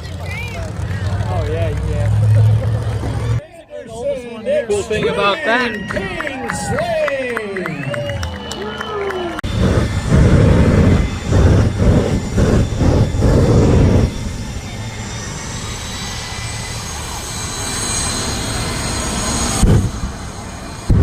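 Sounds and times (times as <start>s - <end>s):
high rising whine: 0.0s - 3.4s, 9.4s - 21.0s
monster truck engine revving: 0.0s - 3.4s, 9.4s - 21.0s.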